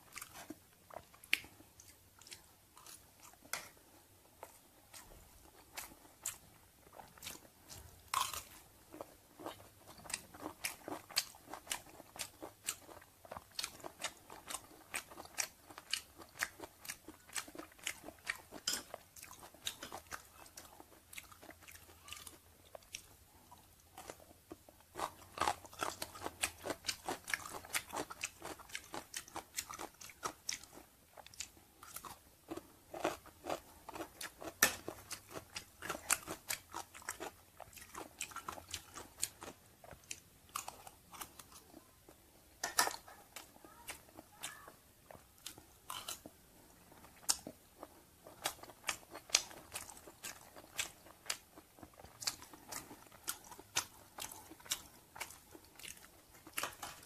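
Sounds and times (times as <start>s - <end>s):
wet crunchy chewing: 4.4s - 23.2s.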